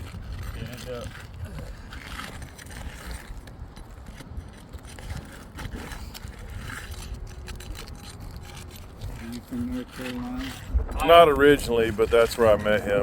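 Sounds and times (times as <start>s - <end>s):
light clicks on shingles: 0.0s - 13.0s
scraping on roof shingles: 0.0s - 13.0s
steady low rumble: 6.4s - 13.0s.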